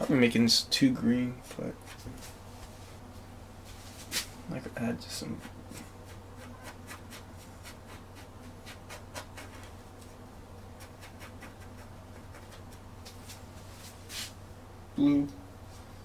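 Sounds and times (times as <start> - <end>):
low steady hum: 0.0 - 16.0
brush scratching on canvas: 5.2 - 9.8, 10.8 - 14.4.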